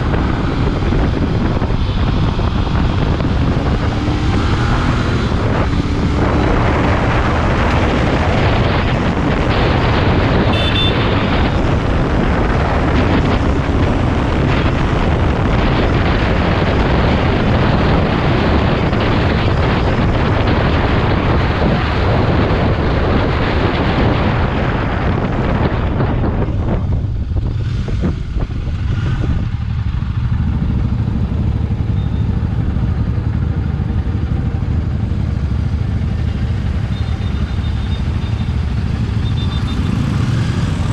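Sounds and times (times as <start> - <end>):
wind buffeting on microphone: 0.0 - 39.2
motorcycle engine running: 0.0 - 40.9.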